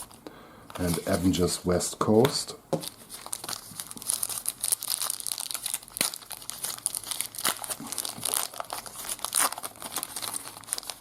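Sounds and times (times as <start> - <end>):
wrapper crinkling and tearing: 2.8 - 11.0.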